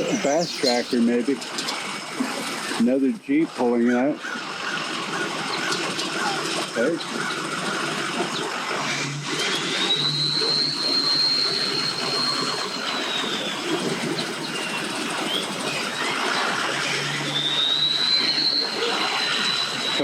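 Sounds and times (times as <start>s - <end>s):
high thin whine: 0.0s - 1.3s, 10.7s - 16.1s
vehicle engines running: 0.0s - 1.6s, 10.7s - 16.2s
outdoor noise bed: 0.0s - 20.0s.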